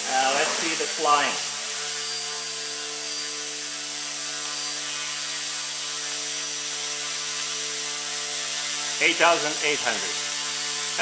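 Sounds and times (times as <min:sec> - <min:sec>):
rc helicopter motor and rotor: 0:00.0 - 0:11.0.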